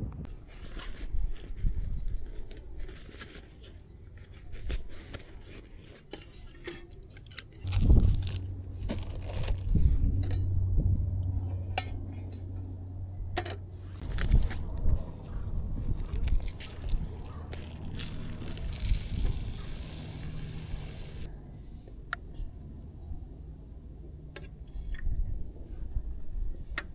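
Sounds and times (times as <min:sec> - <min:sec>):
low steady hum: 0:05.9 - 0:26.9
small hard objects clinking: 0:06.2 - 0:09.7, 0:16.0 - 0:21.3.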